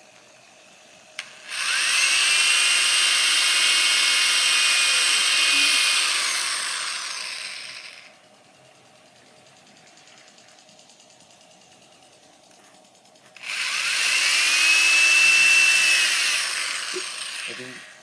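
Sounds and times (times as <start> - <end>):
power drill whining: 1.2 - 8.2, 13.4 - 18.0.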